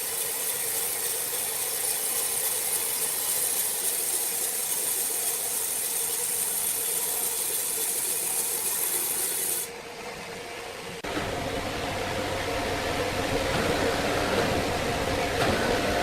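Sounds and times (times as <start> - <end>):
machine low hum: 9.6 - 16.0.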